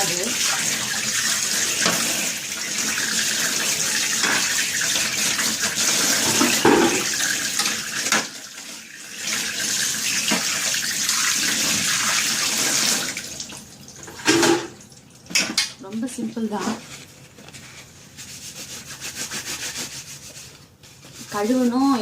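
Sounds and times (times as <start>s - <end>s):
tap water splashing: 4.1s - 8.4s, 9.2s - 15.7s.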